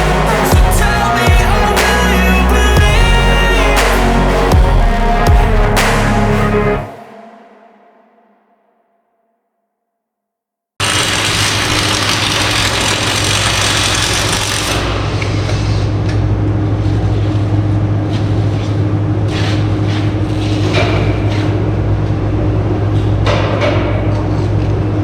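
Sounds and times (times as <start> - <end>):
deep electrical hum: 0.0 - 6.9
arc welding hiss and crackle: 10.8 - 14.8
welding crackles and pops: 10.8 - 14.9.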